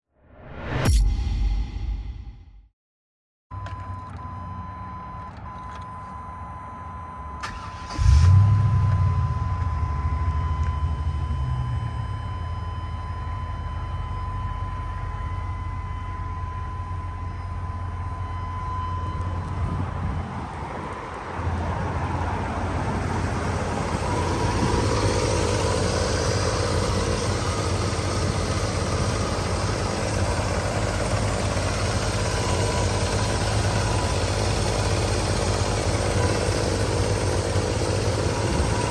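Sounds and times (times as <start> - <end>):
pickup engine starting and idling: 7.4 - 14.2, 17.3 - 38.9.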